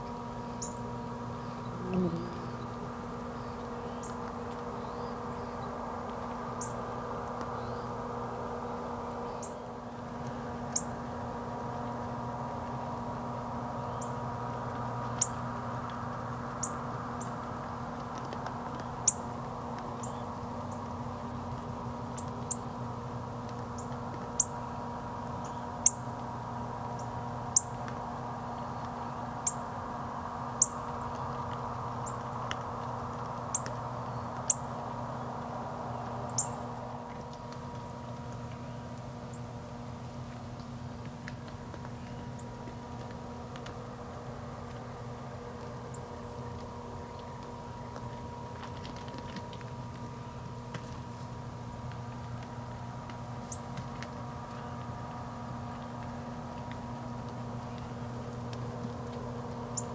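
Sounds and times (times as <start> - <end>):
steady low hum: 0.0 - 59.9
small bird chip calls: 0.4 - 5.8, 36.2 - 36.7, 59.7 - 59.9.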